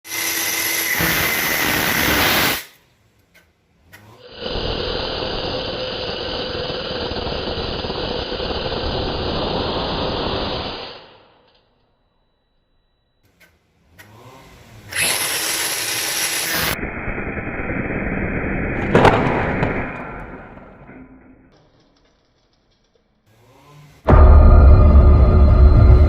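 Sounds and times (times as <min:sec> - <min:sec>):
angle grinder whining: 0:00.1 - 0:02.7, 0:04.0 - 0:09.3, 0:14.0 - 0:16.8
small clicks: 0:03.2 - 0:04.2, 0:13.2 - 0:14.2.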